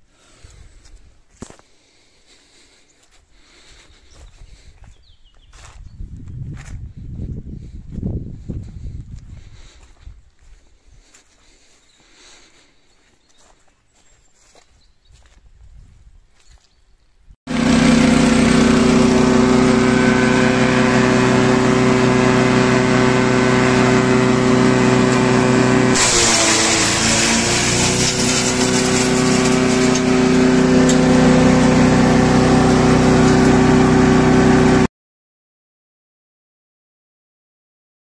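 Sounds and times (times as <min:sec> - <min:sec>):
garden shredder engine running: 0:17.5 - 0:34.9.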